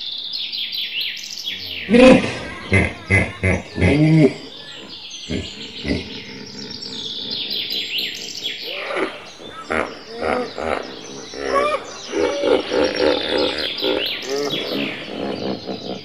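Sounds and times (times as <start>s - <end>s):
birds chirping and singing: 0.0s - 16.0s
lower repeated bird calls: 0.0s - 16.0s.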